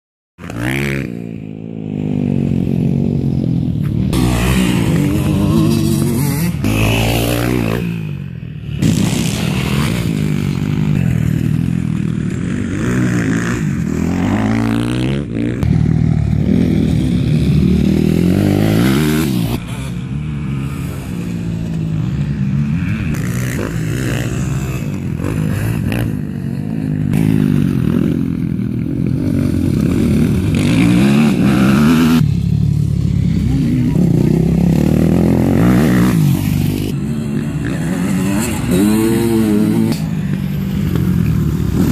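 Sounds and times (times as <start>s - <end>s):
motocross bike engines revving: 0.4s - 41.9s.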